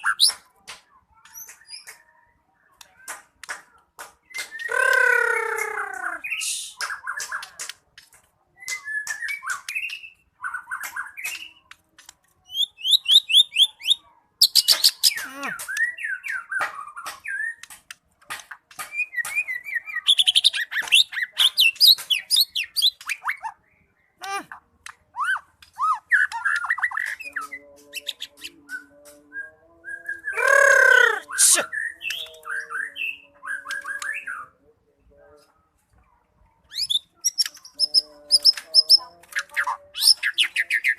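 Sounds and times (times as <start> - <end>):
bird singing warbled phrases: 0.0 - 35.6, 36.6 - 40.9
harsh drawn-out bird call: 4.5 - 6.8, 30.3 - 34.4.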